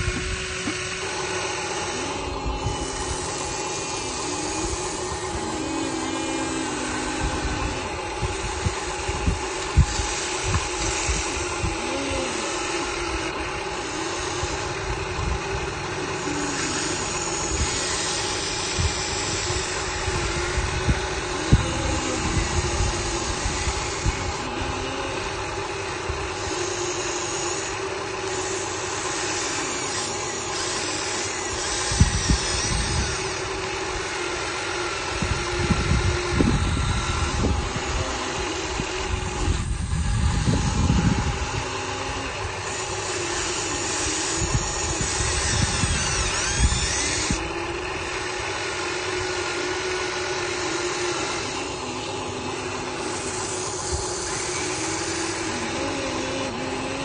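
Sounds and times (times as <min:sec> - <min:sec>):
toy vehicle motors humming: 0:00.0 - 0:57.0.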